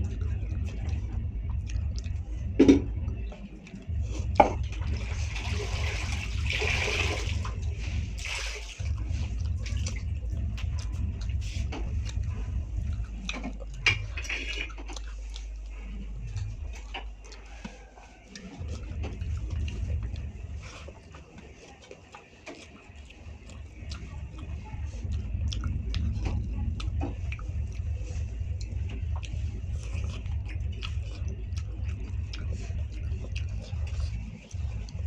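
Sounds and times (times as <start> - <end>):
low rumble: 0.0 - 21.6, 22.9 - 35.0
person chewing food: 0.0 - 35.0.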